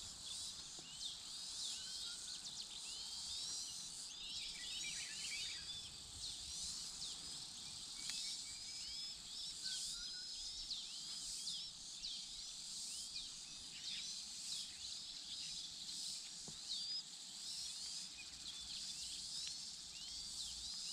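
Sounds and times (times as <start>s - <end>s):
steady high hiss: 0.0s - 20.9s
birds chirping: 0.1s - 20.9s.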